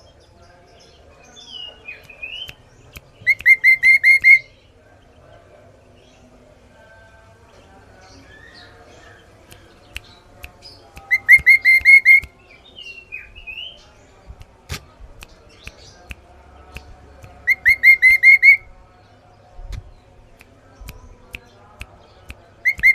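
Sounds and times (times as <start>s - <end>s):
bird whistled song: 1.5s - 4.6s, 11.0s - 13.8s, 17.4s - 18.7s, 22.6s - 22.9s
faint bird chirps: 16.7s - 21.7s.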